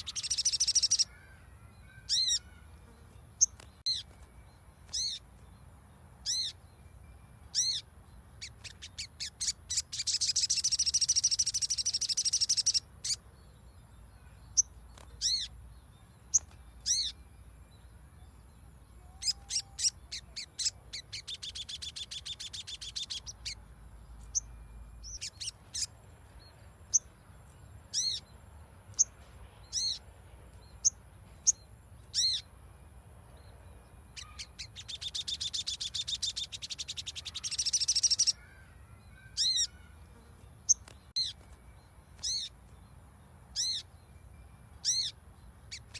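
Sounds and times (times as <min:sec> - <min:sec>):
bird calling: 0:00.0 - 0:02.7, 0:34.1 - 0:40.0
bird chattering trills: 0:00.0 - 0:02.7, 0:08.4 - 0:13.2, 0:19.0 - 0:23.6, 0:34.1 - 0:40.0.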